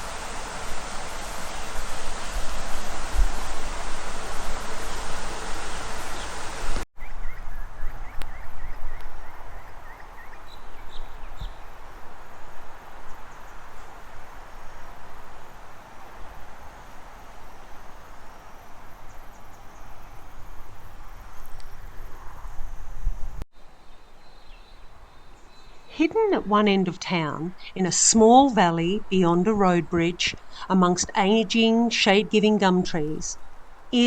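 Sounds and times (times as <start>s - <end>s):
loud steady rushing noise: 0.0s - 6.8s
steady hiss: 0.0s - 6.8s.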